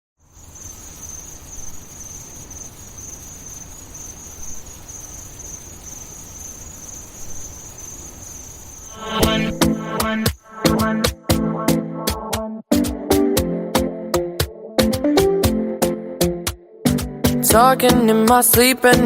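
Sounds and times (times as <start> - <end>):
insects chirring: 0.2 - 11.2
song with beat: 9.0 - 19.0.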